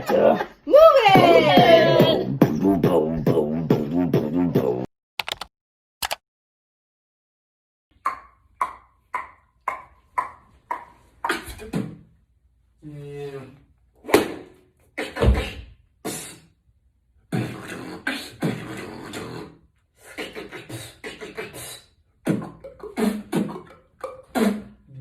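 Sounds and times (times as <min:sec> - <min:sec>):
person beatboxing: 0:01.2 - 0:04.9, 0:08.0 - 0:12.1, 0:15.0 - 0:16.6, 0:17.3 - 0:25.0.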